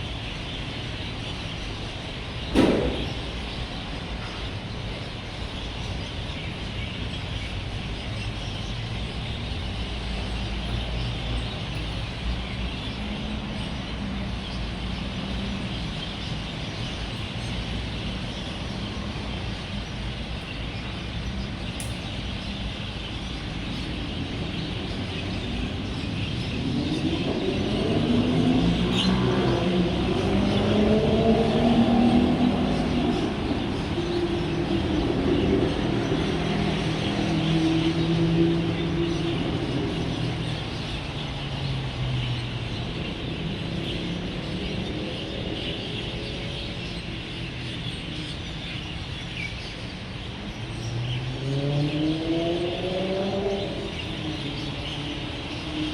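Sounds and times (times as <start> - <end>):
birds chirping: 0.0 - 55.9
road traffic rumble: 0.0 - 55.9
passing vehicle engine: 26.6 - 40.7, 51.0 - 55.9.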